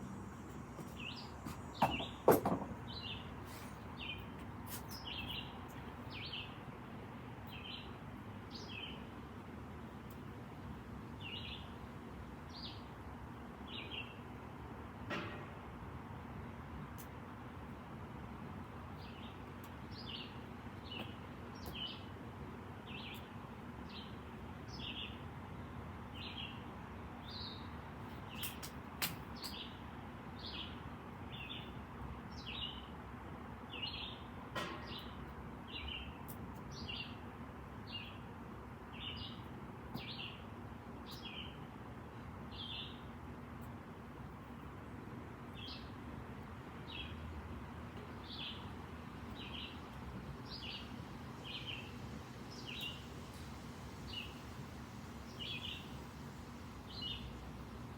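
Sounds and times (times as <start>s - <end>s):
small bird chirping: 50.4s - 53.0s, 54.0s - 54.4s, 55.2s - 56.0s, 56.8s - 57.6s.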